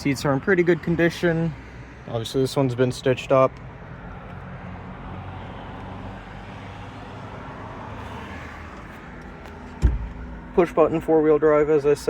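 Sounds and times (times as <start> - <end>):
traffic hum: 0.0 - 12.0
dull thump: 9.7 - 10.3.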